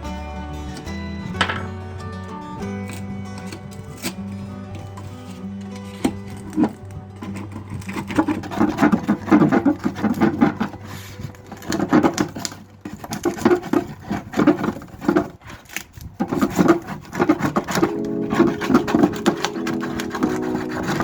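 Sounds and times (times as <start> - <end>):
hand tool scraping a surface: 6.0 - 21.0.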